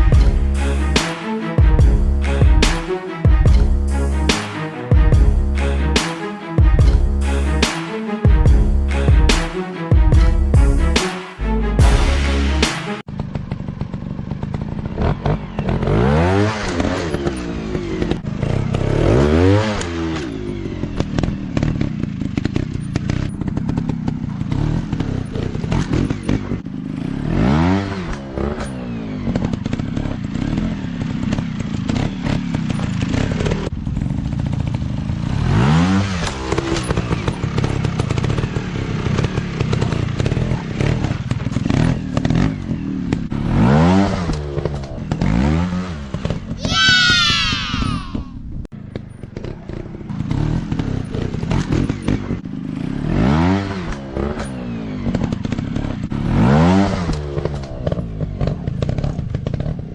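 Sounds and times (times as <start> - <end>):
dirt bike engines revving: 13.2 - 48.3.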